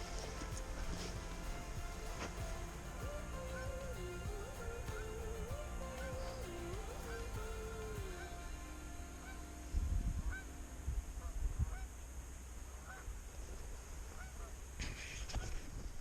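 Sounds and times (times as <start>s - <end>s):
geese honking: 0.0s - 10.5s.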